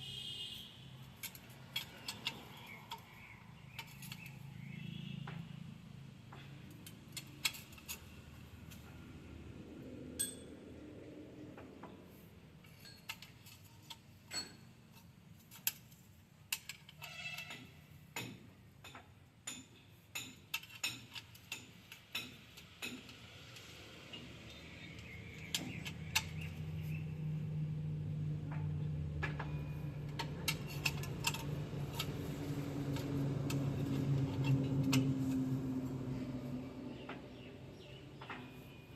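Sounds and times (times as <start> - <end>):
low engine hum: 24.2 - 38.6
metallic clinks and taps: 28.5 - 32.3.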